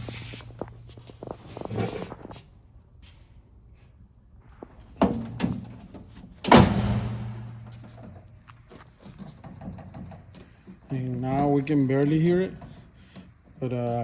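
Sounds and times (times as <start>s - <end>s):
ringing tailgate bang: 6.4s - 7.9s.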